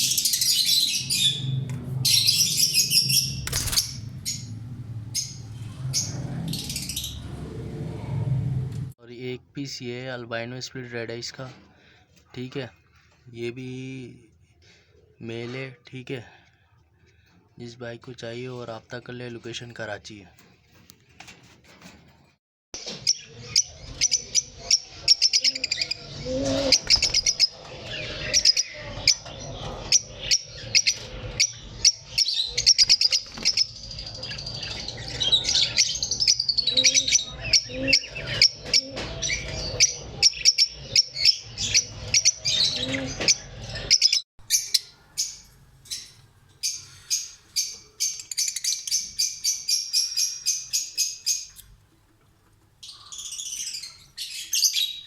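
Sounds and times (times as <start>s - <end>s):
lovebirds chirping: 23.1s - 51.8s, 52.8s - 55.0s.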